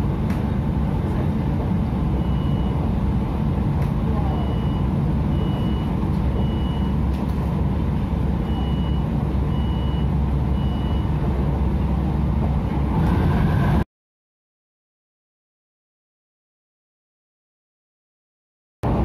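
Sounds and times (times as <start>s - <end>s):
train rumble: 0.0s - 13.8s.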